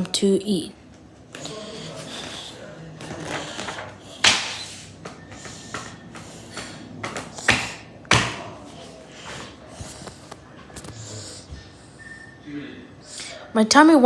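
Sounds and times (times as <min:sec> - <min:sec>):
book pages rustling: 0:01.2 - 0:07.6, 0:08.7 - 0:11.0
picture book knocks: 0:03.5 - 0:04.6, 0:05.7 - 0:08.5.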